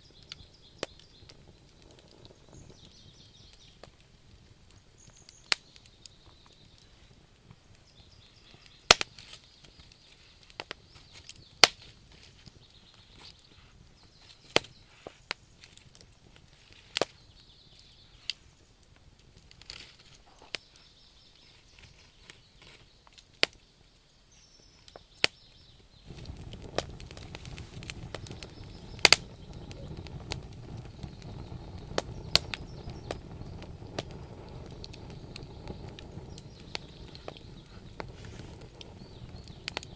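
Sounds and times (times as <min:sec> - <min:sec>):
wood fire crackling and popping: 0:00.0 - 0:39.9
steady low rushing: 0:26.1 - 0:39.9.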